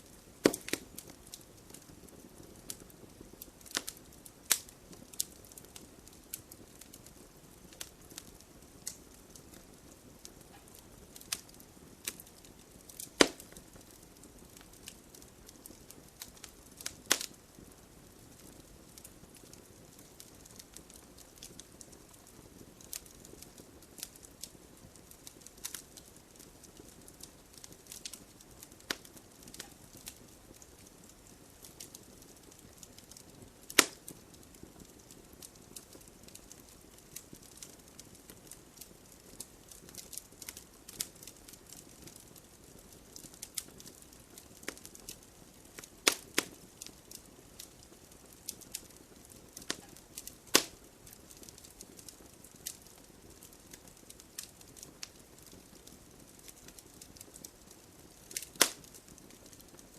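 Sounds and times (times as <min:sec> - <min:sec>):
fire hissing and crackling: 0:00.0 - 0:59.9
sharp popping of logs: 0:00.4 - 0:00.9, 0:13.0 - 0:13.5, 0:33.7 - 0:34.0, 0:46.0 - 0:46.5, 0:50.5 - 0:50.8, 0:58.4 - 0:58.8.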